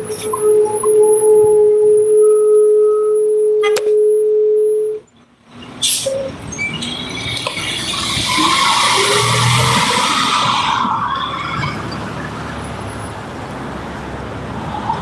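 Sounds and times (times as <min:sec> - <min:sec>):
car approaching: 0:04.5 - 0:15.0
steady whining tone: 0:07.0 - 0:12.8.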